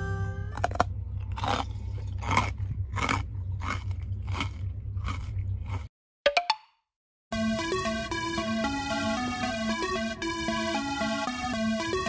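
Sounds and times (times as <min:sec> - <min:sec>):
steady low hum: 0:00.0 - 0:05.9
chewing crunchy snacks: 0:00.6 - 0:05.9.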